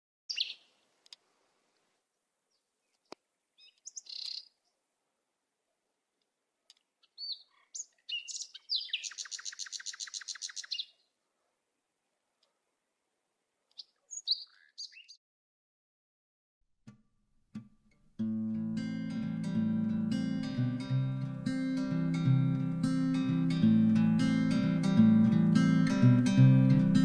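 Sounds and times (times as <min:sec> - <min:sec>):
fast bird trill: 0:00.3 - 0:00.7, 0:03.6 - 0:04.5, 0:07.1 - 0:11.0, 0:13.8 - 0:15.2
birds chirping: 0:00.3 - 0:00.8, 0:02.5 - 0:04.8, 0:06.7 - 0:11.2, 0:13.7 - 0:15.2.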